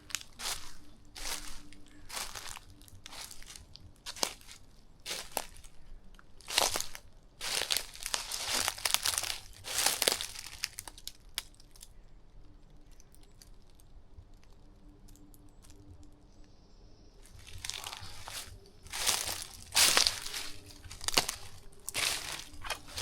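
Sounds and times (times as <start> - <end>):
footsteps crunching dry vegetation: 0.0 - 11.9, 17.2 - 23.0
crackles and snaps: 0.0 - 16.6, 17.2 - 23.0
faint low hum: 0.0 - 23.0.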